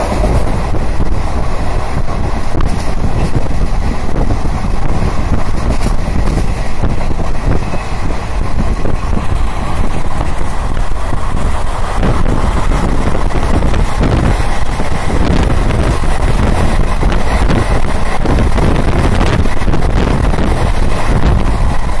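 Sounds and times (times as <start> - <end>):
train running on rails: 0.0 - 22.0
wind buffeting microphone: 0.0 - 22.0.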